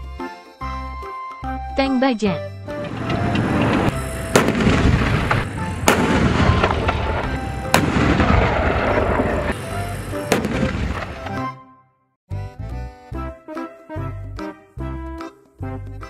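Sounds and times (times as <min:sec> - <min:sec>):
background music: 0:00.0 - 0:16.0
tank engine and tracks rumbling: 0:02.6 - 0:11.5
gunfire bangs: 0:04.2 - 0:09.6, 0:10.3 - 0:11.2.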